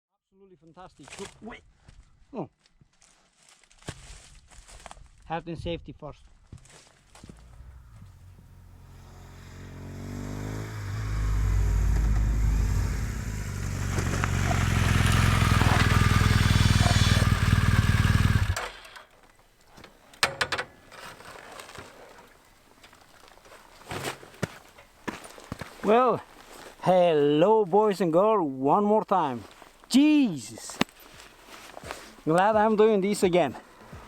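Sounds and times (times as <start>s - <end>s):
motorcycle engine running: 7.2s - 18.9s.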